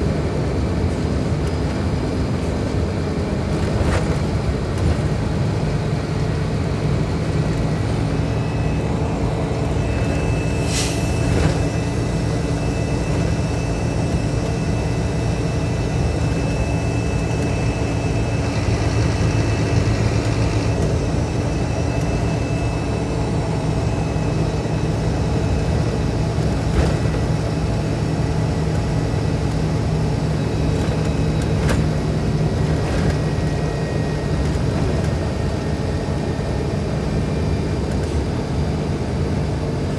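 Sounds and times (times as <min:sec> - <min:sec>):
bus diesel engine running: 0:00.0 - 0:39.9
brief high hiss: 0:10.6 - 0:11.2.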